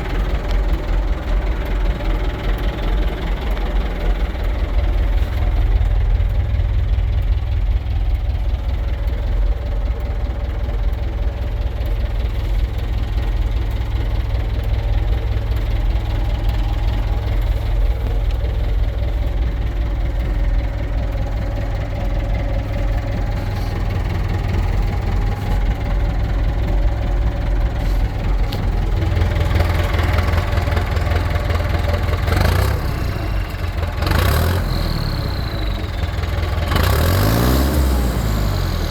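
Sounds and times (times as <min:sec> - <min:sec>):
tractor diesel engine idling: 0:00.0 - 0:38.9.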